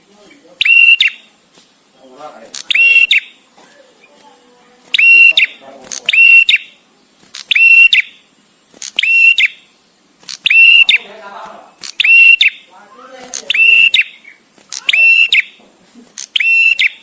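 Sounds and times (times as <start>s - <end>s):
bird whistling calls: 0.6s - 1.3s, 2.6s - 3.4s, 4.9s - 6.8s, 7.4s - 8.2s, 8.9s - 9.7s, 10.4s - 11.1s, 11.8s - 12.7s, 13.4s - 15.6s, 16.3s - 17.0s.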